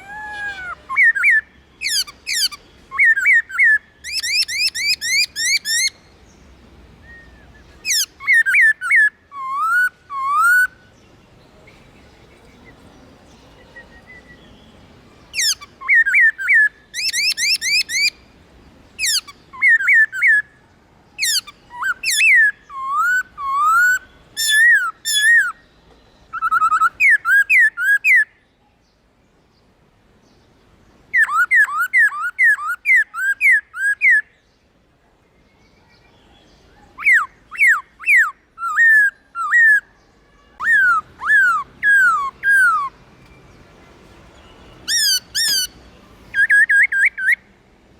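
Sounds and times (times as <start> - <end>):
bird singing whistled phrases: 0.0 - 6.0, 7.0 - 10.9, 13.5 - 14.7, 15.3 - 18.2, 21.2 - 25.6, 26.3 - 28.4, 31.1 - 34.4, 35.8 - 43.0, 44.8 - 47.5.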